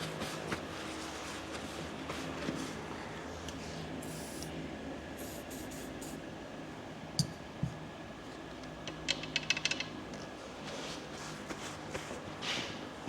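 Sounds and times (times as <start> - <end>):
steady low hum: 0.0 - 13.0
small metal clicks and taps: 8.6 - 10.3.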